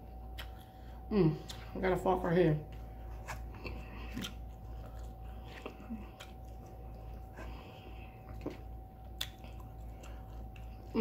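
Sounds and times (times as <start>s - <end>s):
person chewing food: 0.0s - 1.7s, 2.7s - 11.0s
faint steady hum: 0.0s - 11.0s.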